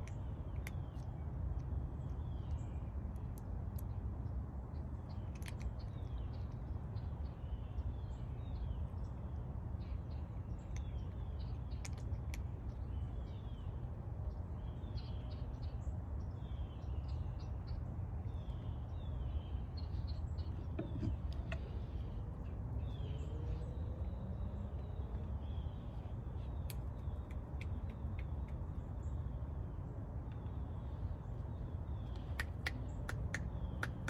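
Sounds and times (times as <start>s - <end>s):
low background rumble: 0.0s - 34.0s
small birds chirping: 0.0s - 34.0s
sharp ticks: 26.6s - 28.7s, 32.1s - 34.0s.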